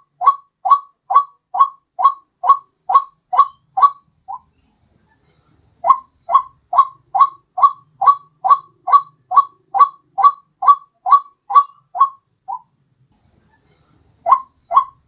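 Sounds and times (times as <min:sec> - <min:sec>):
bird calls rising in pitch: 0:14.3 - 0:15.0.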